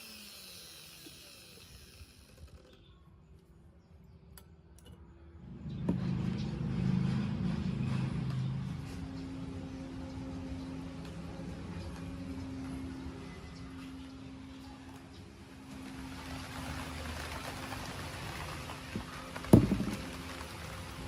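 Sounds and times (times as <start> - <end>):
motor starting click: 0.0 - 2.9
power tool coasting down: 0.0 - 2.9
motor humming: 0.0 - 3.0.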